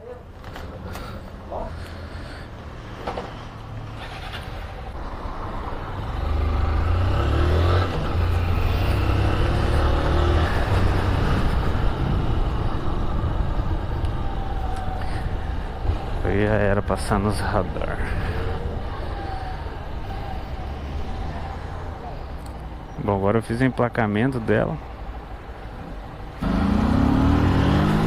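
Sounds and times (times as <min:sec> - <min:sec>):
motorcycle engine riding off: 0:26.4 - 0:28.0.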